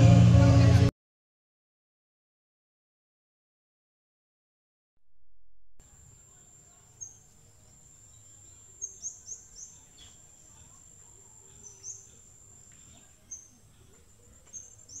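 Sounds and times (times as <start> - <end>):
birds chirping: 5.9 - 15.0.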